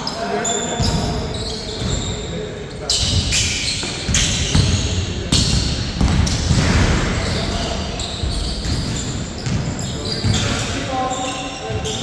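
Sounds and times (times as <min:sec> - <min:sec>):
court noise: 0:00.0 - 0:12.0
players' voices: 0:00.0 - 0:12.0
basketball bouncing on court: 0:00.8 - 0:02.1, 0:03.0 - 0:10.6.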